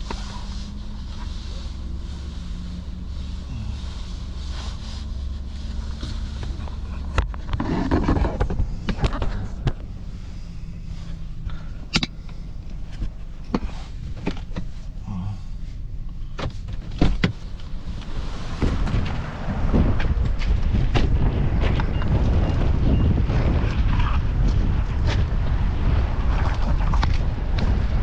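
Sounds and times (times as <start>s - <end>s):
car engine idling: 0.0s - 28.0s
car door opening: 16.2s - 21.9s.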